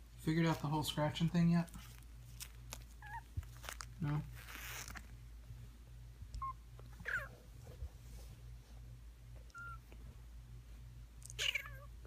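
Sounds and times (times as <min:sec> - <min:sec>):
steady low hum: 0:00.0 - 0:12.0
kitten chirp: 0:03.0 - 0:03.3, 0:09.5 - 0:09.8, 0:11.3 - 0:11.9
kittens mewing: 0:03.0 - 0:03.4, 0:07.0 - 0:07.3, 0:11.2 - 0:11.9.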